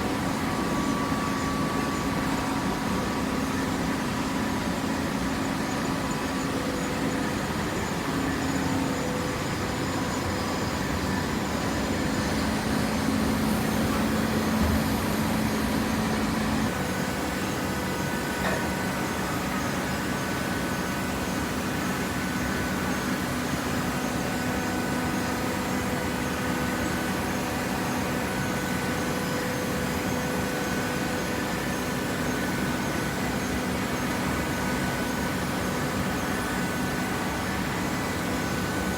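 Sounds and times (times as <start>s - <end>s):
paper baler machine hum: 10.6s - 28.8s.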